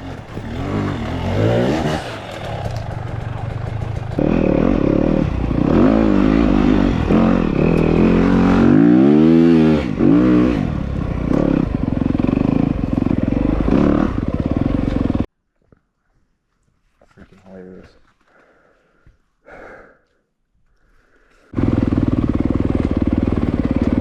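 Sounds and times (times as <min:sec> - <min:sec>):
dirt bike engine revving: 0:00.0 - 0:15.3, 0:21.6 - 0:24.0.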